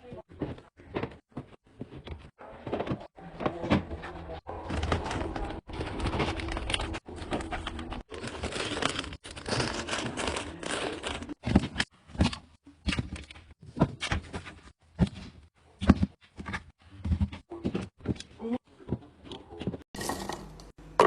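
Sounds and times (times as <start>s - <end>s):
plastic packaging crinkling: 4.7s - 11.4s.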